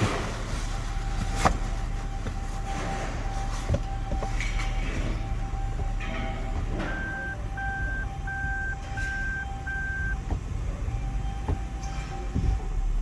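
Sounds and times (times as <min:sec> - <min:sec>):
car engine idling: 0:00.0 - 0:13.0
short electronic beeps: 0:02.1 - 0:10.2.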